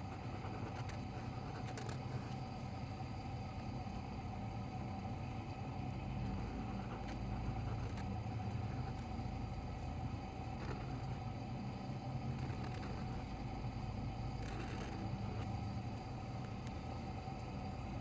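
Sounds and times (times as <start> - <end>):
faint constant tone: 0.0 - 18.0
low background hum: 0.0 - 18.0.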